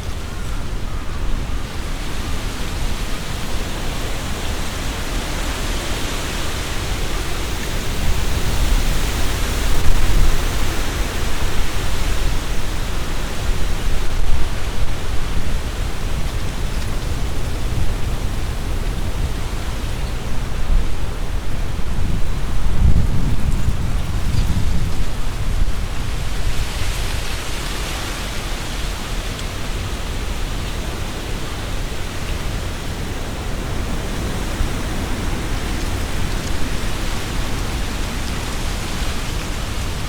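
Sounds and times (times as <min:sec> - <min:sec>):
gusty wind through trees: 0:00.0 - 0:40.0
leaves rustling: 0:00.0 - 0:40.0.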